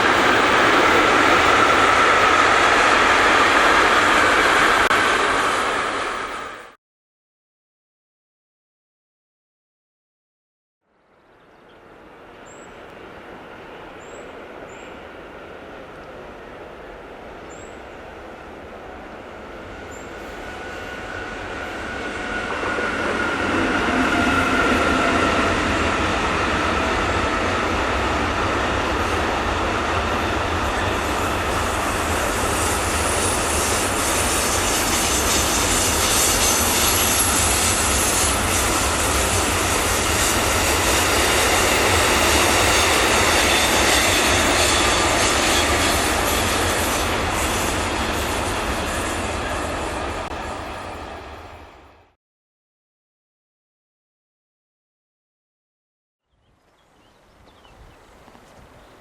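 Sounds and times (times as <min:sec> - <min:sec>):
wheels squealing on rails: 0:00.0 - 0:06.7, 0:18.9 - 0:51.9
train rolling past: 0:00.0 - 0:06.8, 0:11.6 - 0:52.2.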